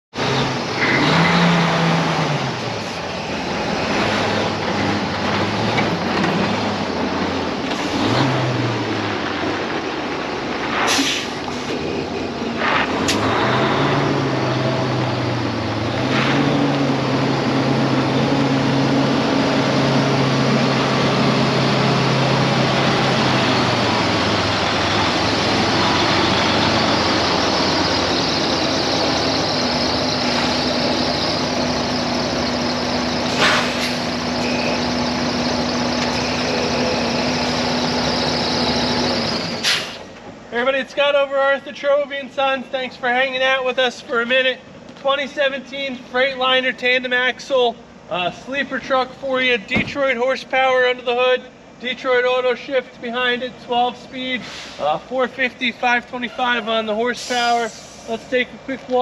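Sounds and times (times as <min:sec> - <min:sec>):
diesel truck engine running: 0:00.1 - 0:59.0
air hisses: 0:10.8 - 0:11.8, 0:33.2 - 0:34.1, 0:39.6 - 0:40.1, 0:57.1 - 0:58.3.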